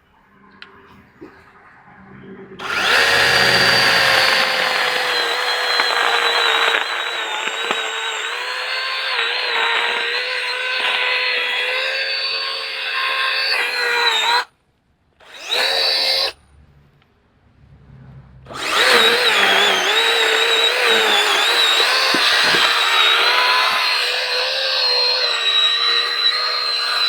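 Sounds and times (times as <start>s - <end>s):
electric chainsaw whining: 2.6s - 14.5s, 15.2s - 16.4s, 18.5s - 27.0s.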